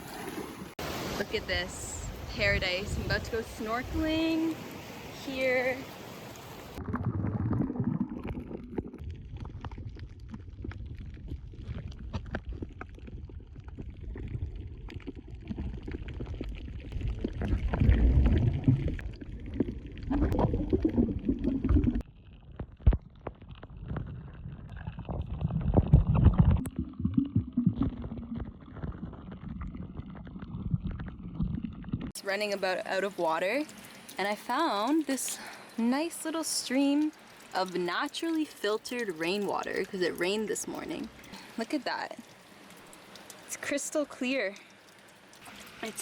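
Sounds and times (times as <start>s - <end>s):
small underwater crackles and clicks: 6.2s - 46.0s
underwater rumbling and gurgling water: 6.4s - 32.2s.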